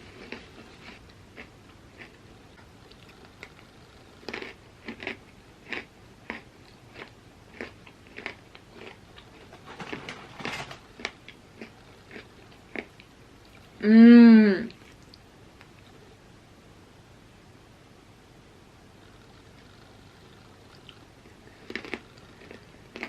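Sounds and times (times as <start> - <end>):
person crunching chips: 4.2 - 12.9, 21.6 - 23.0.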